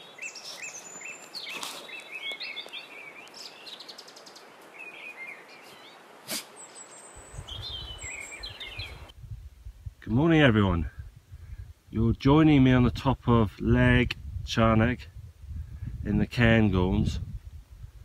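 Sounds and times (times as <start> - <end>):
birds chirping: 0.0 - 9.1.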